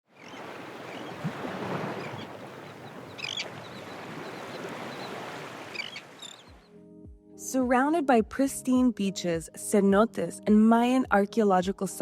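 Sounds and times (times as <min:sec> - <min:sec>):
water noise: 0:00.1 - 0:06.6
bird calls: 0:00.1 - 0:06.7
high bird chirps: 0:02.0 - 0:06.7.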